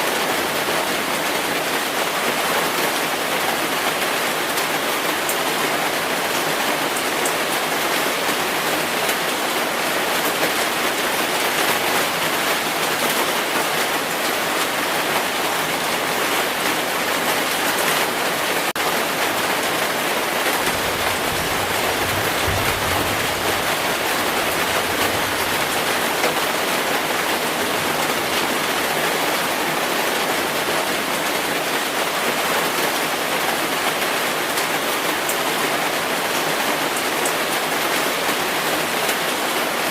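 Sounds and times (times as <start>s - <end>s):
heavy rain: 0.0s - 39.9s
thunder rumble: 20.6s - 25.8s.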